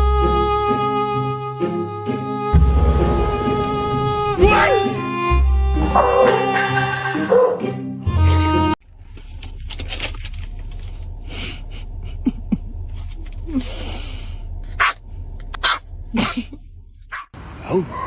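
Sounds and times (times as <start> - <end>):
violin music: 0.0 - 6.0.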